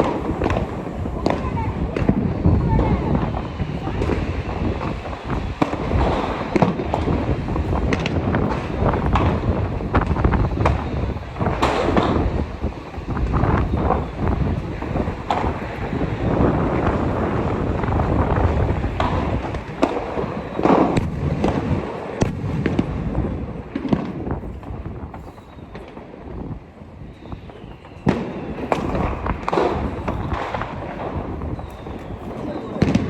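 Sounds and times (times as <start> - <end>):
firecrackers banging: 0.0 - 33.0.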